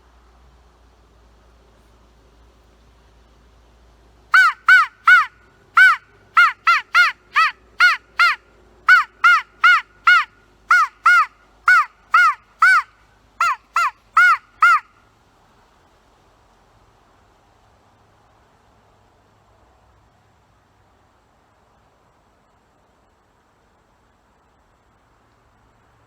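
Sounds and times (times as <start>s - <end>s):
crow call caws: 4.4s - 14.9s.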